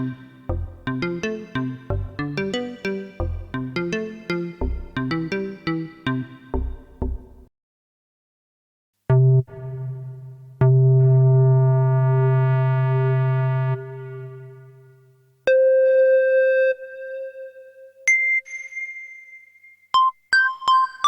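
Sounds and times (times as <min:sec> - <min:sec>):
synthesizer lead notes: 0:00.0 - 0:07.5, 0:09.1 - 0:14.9.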